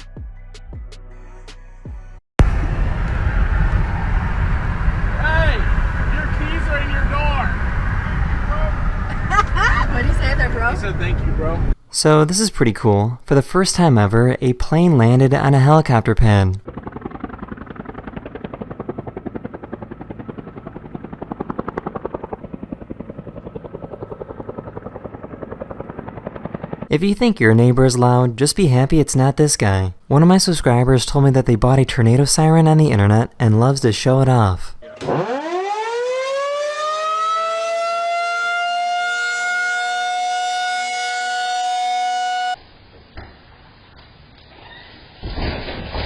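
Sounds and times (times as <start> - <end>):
tornado siren wailing: 2.4 - 11.8, 16.6 - 26.9, 34.8 - 42.6
helicopter rotor chopping: 2.5 - 11.8, 15.0 - 28.1, 35.0 - 42.5
low engine rumble: 16.1 - 27.0.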